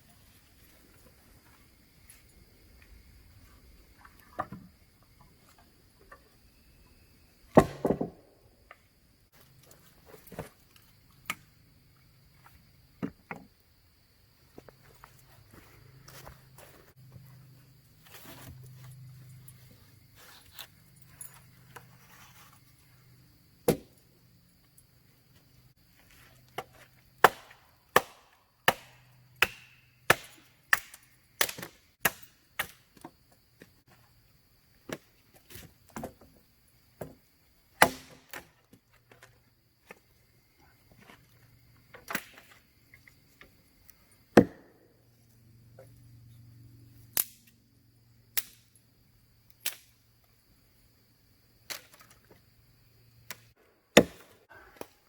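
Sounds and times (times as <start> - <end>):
axe chopping firewood: 7.5 - 8.2, 23.7 - 24.0, 26.6 - 32.8, 37.8 - 38.5, 44.4 - 44.8, 53.9 - 55.0.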